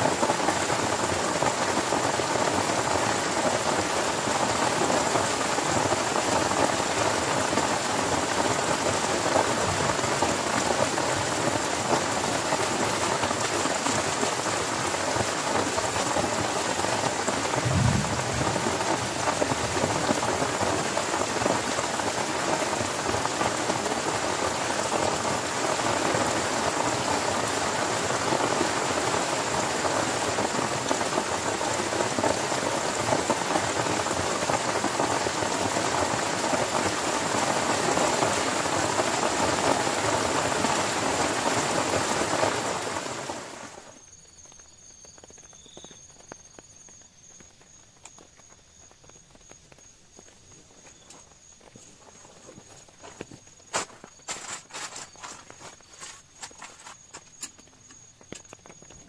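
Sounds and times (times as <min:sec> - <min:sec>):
heavy rain falling: 0:00.0 - 0:44.0
short low rumble: 0:17.6 - 0:19.2.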